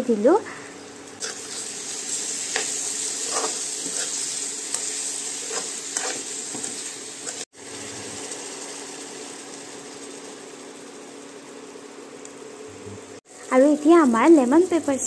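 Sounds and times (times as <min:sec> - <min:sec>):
chicken sizzling in oil: 0:01.2 - 0:12.6
metal spoon scraping a pan: 0:02.5 - 0:07.4.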